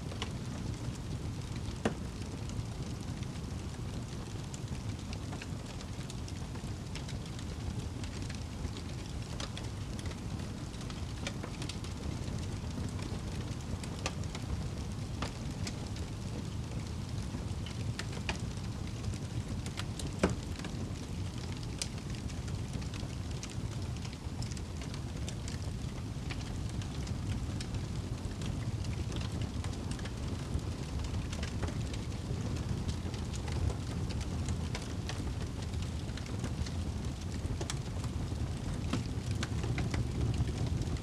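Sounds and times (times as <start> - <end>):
wood fire crackling and popping: 0.0 - 41.0.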